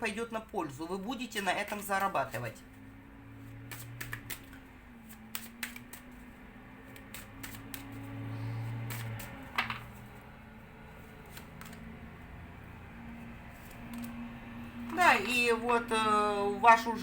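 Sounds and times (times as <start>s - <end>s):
cards clicking and snapping: 3.6s - 6.2s, 6.8s - 8.1s, 11.2s - 12.0s, 13.6s - 14.2s.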